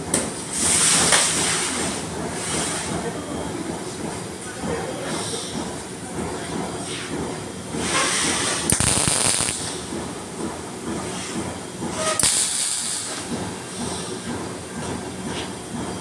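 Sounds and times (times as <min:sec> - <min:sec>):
steady background noise: 0:00.0 - 0:16.0
welding arc crackling: 0:08.7 - 0:09.8.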